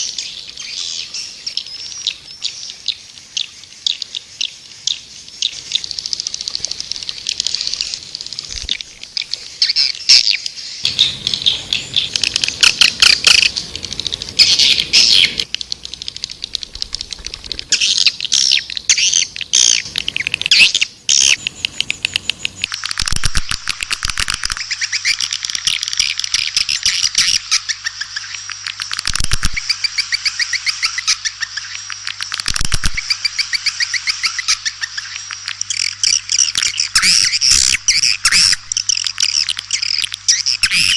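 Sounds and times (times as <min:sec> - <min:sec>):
swiftlets twittering: 0:10.8 - 0:40.9.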